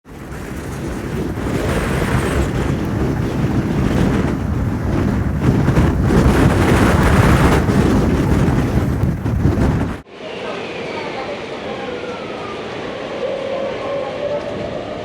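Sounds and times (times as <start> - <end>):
gusty wind buffeting microphone: 0.0 - 10.1.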